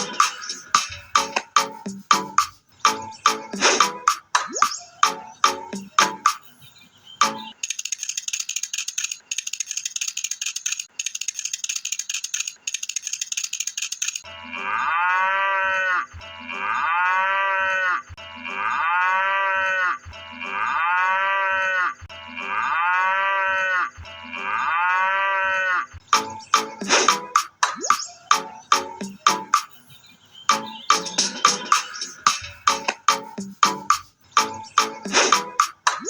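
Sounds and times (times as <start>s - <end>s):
cow mooing: 14.4s - 25.9s.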